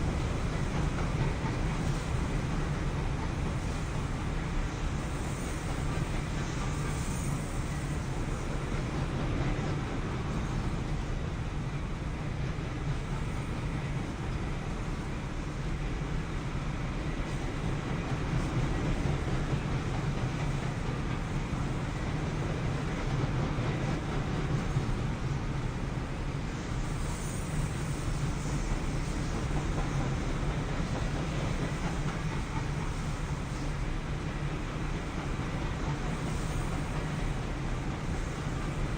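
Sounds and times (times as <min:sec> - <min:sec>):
freight train passing: 0:00.0 - 0:38.9.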